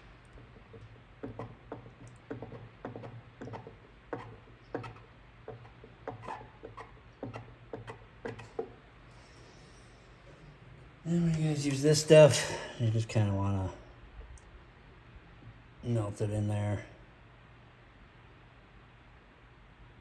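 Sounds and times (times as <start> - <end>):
low steady hum: 0.0 - 20.0
welding iron ticking and scraping plastic: 0.2 - 8.8.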